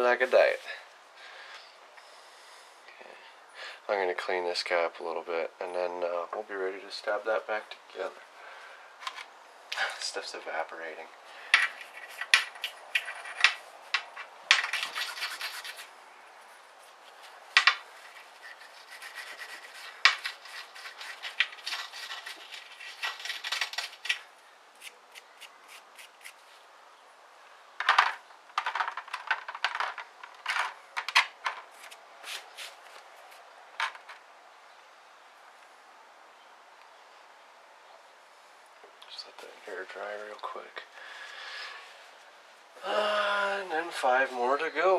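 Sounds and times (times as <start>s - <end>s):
rubbing and scraping metal part: 11.5s - 15.9s, 16.8s - 24.9s.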